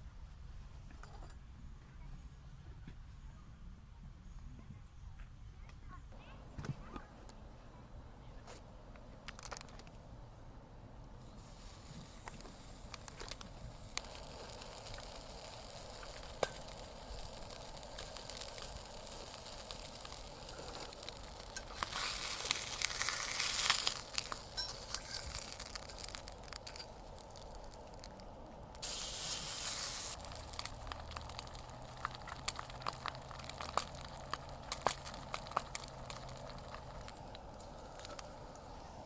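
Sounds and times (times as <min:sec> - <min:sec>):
campfire crackling: 0:08.4 - 0:39.0
sizzling hiss: 0:11.2 - 0:39.0.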